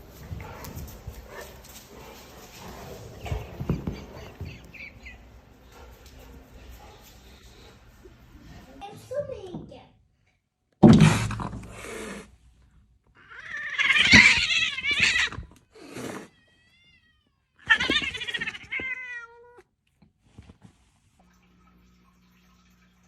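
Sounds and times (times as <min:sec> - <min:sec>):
cat meowing and yowling: 0:13.2 - 0:15.6, 0:16.2 - 0:19.6.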